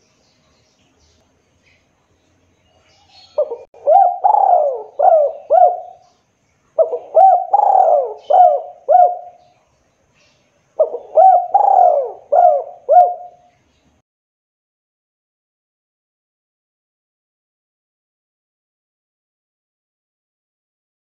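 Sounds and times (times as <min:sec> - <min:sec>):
dove cooing: 0:03.0 - 0:06.1, 0:06.8 - 0:09.5, 0:10.8 - 0:13.5.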